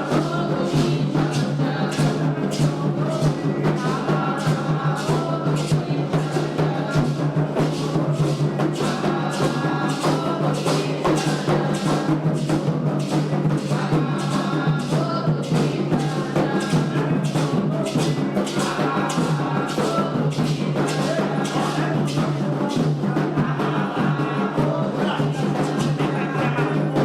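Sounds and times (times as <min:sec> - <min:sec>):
hand drums playing fast rhythm: 0:00.0 - 0:27.0
voices singing a chant: 0:00.0 - 0:27.0.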